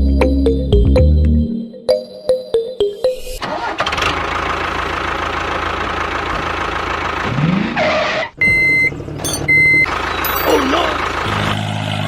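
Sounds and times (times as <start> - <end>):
engine running and revving: 10.9 - 12.0.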